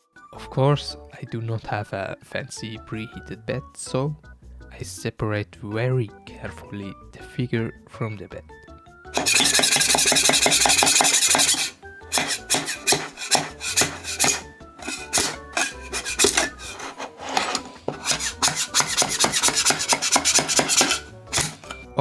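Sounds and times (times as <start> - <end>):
plastic scraping off print bed: 9.2 - 21.8.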